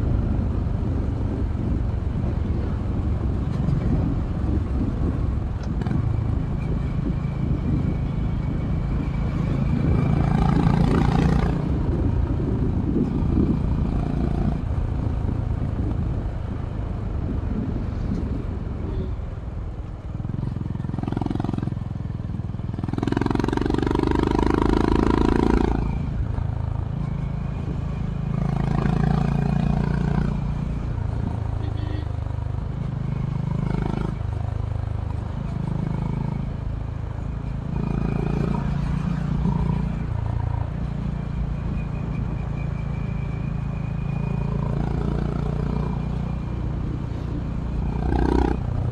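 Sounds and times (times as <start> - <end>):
wind noise: 0.0 - 48.9.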